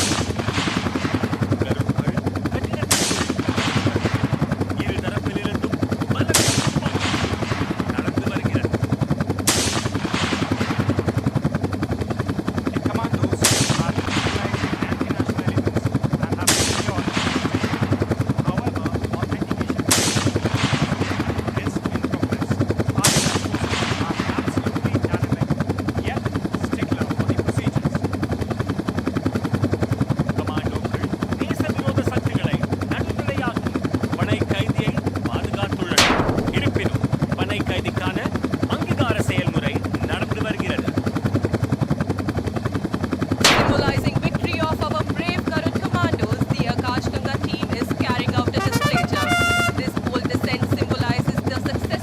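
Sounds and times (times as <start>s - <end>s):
sharp bangs: 0.0s - 1.5s, 2.7s - 4.9s, 6.2s - 8.4s, 9.4s - 11.1s, 13.4s - 15.0s, 16.4s - 18.0s, 19.8s - 21.7s, 23.0s - 24.6s, 35.9s - 36.9s, 43.4s - 44.5s, 48.6s - 49.8s
helicopter rotor chopping: 0.0s - 52.0s.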